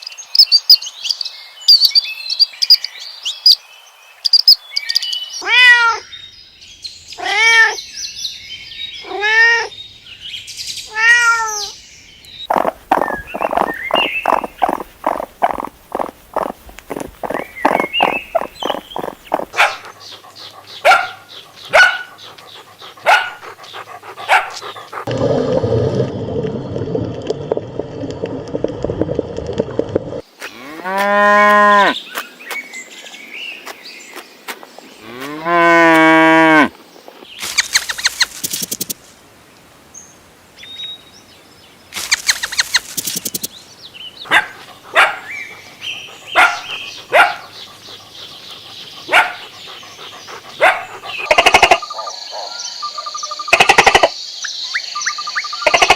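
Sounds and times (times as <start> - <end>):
rough noisy animal call: 12.4 - 26.0, 44.2 - 54.1
short pulsing animal calls: 12.5 - 20.9, 50.7 - 52.1
arching pitched animal calls: 12.5 - 25.2, 44.8 - 52.1.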